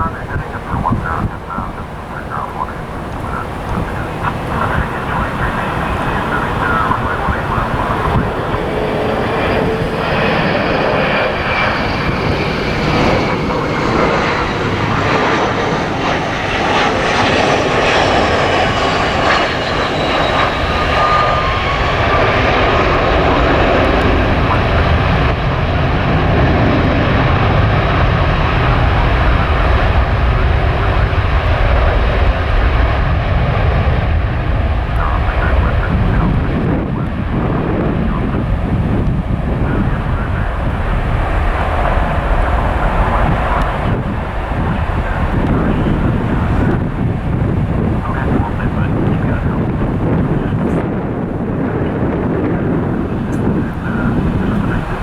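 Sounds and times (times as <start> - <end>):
jet airliner passing: 0.0 - 55.0.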